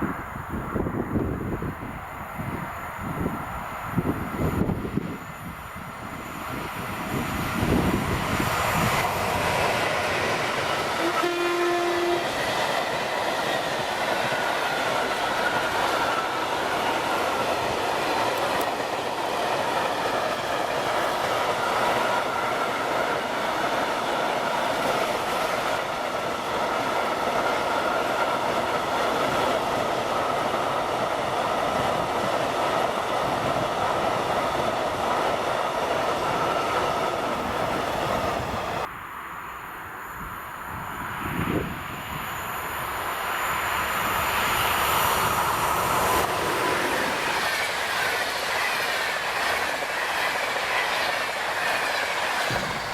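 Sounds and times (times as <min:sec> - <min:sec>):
train wheels rolling: 0:02.8 - 0:38.9, 0:41.1 - 0:52.9
train horn blast: 0:10.8 - 0:12.4.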